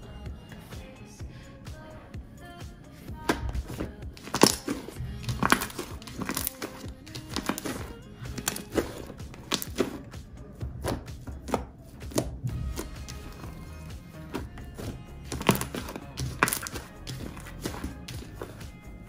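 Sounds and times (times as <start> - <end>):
background music: 0.0 - 19.0
slime clicking and popping: 4.2 - 7.8.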